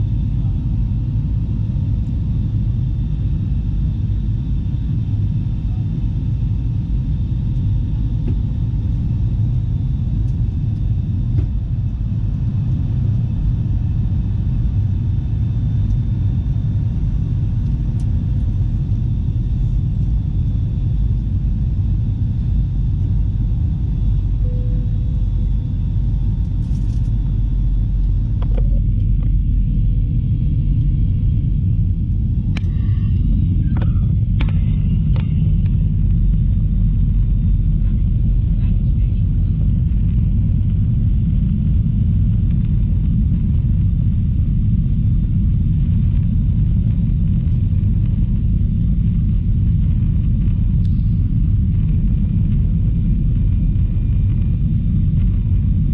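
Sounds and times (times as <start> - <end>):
faint whining tones: 0.0 - 43.2
jet engines rumbling in cabin: 0.0 - 55.9.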